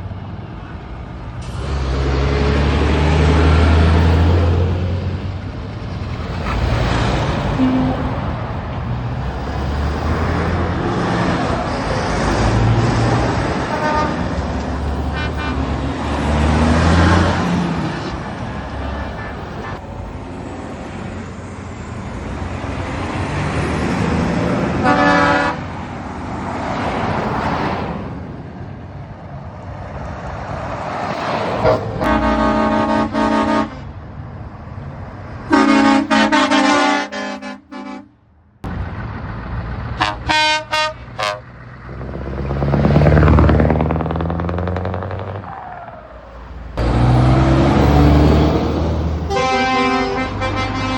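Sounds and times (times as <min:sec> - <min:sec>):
heavy trucks driving past: 0:00.0 - 0:50.9
truck air horn blasts: 0:07.6 - 0:08.2, 0:13.6 - 0:14.3, 0:15.1 - 0:15.7, 0:24.8 - 0:25.7, 0:31.6 - 0:33.9, 0:35.5 - 0:38.2, 0:40.0 - 0:41.5, 0:49.2 - 0:50.9.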